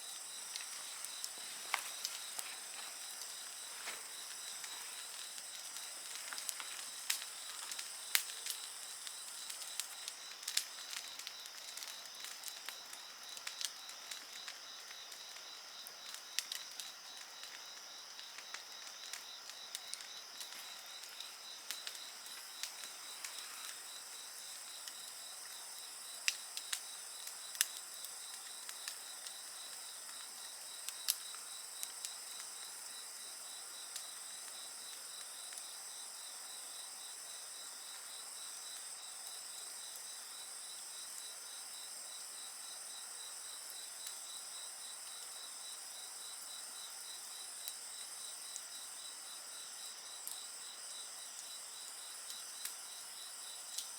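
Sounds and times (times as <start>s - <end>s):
sharp pops from campfire: 0.0s - 32.8s, 47.5s - 52.9s, 53.5s - 53.9s
campfire crackling: 0.0s - 53.9s
crickets chirping: 0.0s - 53.9s.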